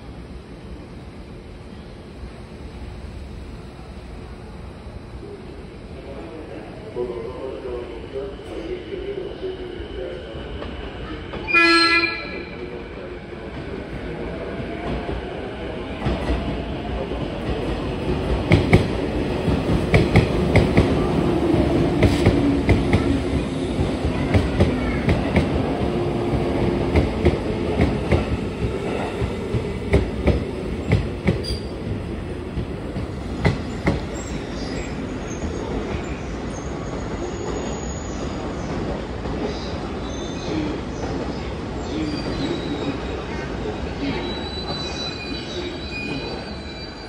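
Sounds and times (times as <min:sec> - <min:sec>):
train rumble: 0:07.6 - 0:37.6.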